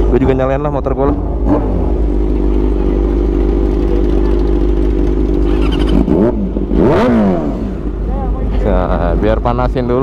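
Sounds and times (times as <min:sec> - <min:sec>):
motorcycle engine idling and revving: 0:00.0 - 0:10.0.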